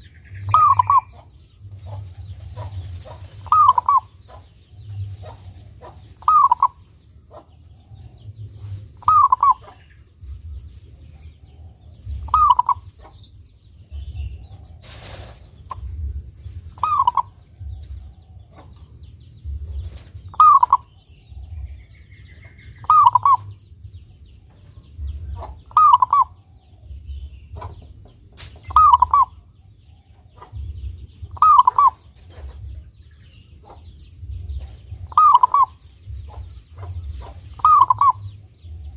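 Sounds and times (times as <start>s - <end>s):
dove cooing: 0.0s - 13.2s, 13.9s - 18.9s, 19.5s - 21.9s, 22.8s - 23.6s, 25.0s - 27.8s, 28.7s - 29.5s, 31.3s - 32.8s, 34.5s - 38.9s
low steady hum: 0.0s - 38.9s.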